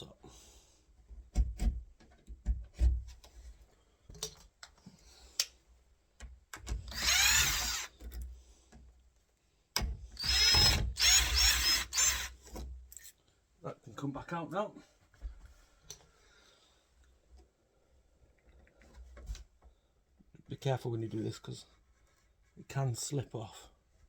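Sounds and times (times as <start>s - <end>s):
power drill driver running: 6.8s - 8.0s, 10.2s - 12.4s.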